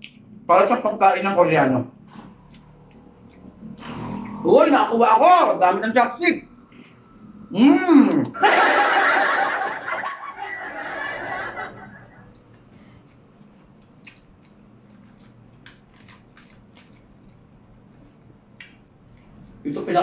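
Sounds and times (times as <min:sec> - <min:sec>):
chewing clicks: 0:00.0 - 0:00.3, 0:02.1 - 0:04.4, 0:12.3 - 0:19.6.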